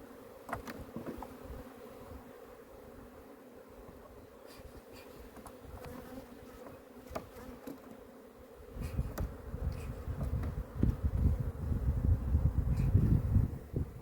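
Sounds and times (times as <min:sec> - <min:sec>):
honeybees buzzing: 0:00.0 - 0:14.0
wind buffeting microphone: 0:08.7 - 0:14.0.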